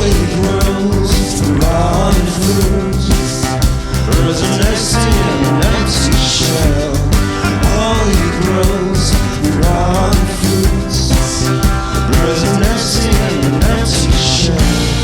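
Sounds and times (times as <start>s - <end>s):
instrumental rock band: 0.0s - 15.0s
pitch-bending melody line: 0.0s - 15.0s.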